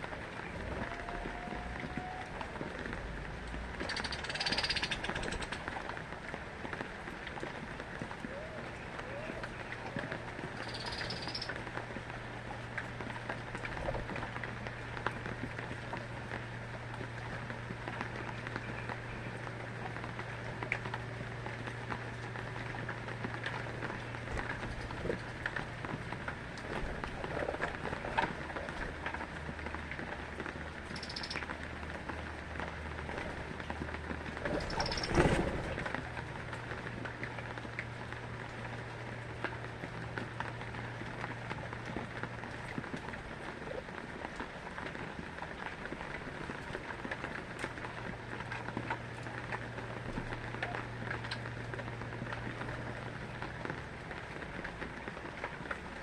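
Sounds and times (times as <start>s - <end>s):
rain drops ticking on hard surface: 0.0s - 56.0s
high bird chirp: 10.6s - 11.5s
drips ticking: 10.6s - 11.8s, 30.9s - 31.6s.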